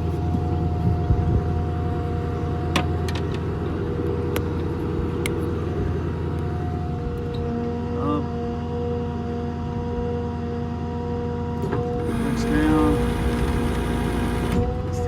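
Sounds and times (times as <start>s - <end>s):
truck engine rumbling: 0.0s - 10.2s, 11.2s - 15.0s
constant whine: 0.0s - 15.0s.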